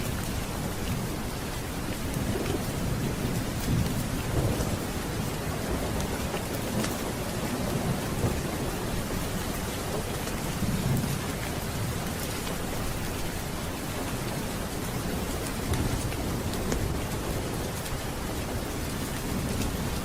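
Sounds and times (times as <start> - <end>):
thunder rumble: 0.0 - 12.6
steady rain: 0.0 - 20.0.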